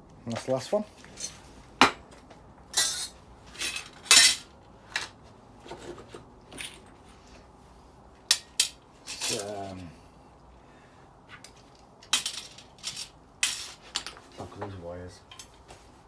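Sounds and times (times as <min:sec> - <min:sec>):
small metal parts clinking: 0:02.8 - 0:04.5, 0:08.3 - 0:09.8, 0:12.0 - 0:14.2.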